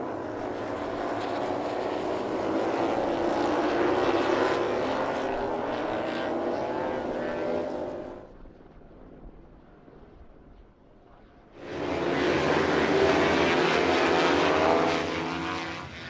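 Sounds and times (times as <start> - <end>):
racing motorcycle engine revving: 11.6 - 16.0.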